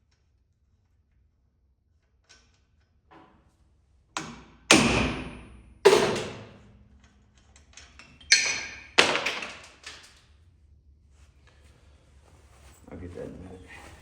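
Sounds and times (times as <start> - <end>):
hammer striking metal bolt: 4.2 - 6.5.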